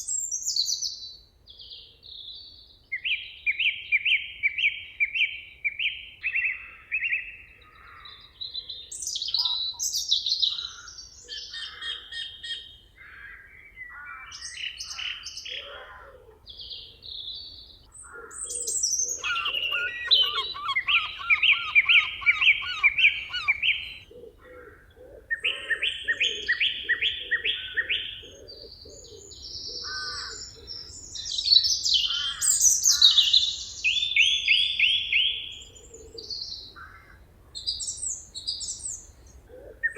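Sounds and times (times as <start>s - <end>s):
songbirds singing: 0.0s - 39.9s
lower repeated bird call: 3.0s - 39.9s.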